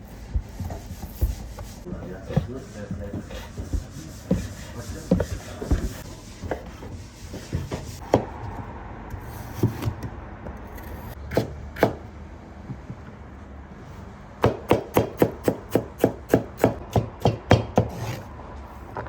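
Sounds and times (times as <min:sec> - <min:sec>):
rubbing and rustling on wood: 0:00.0 - 0:08.0.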